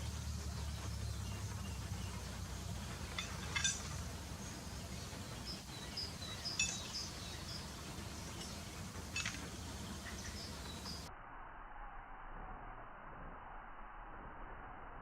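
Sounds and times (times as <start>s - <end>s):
birds chirping: 0.0s - 11.1s
low background rumble: 0.0s - 15.0s.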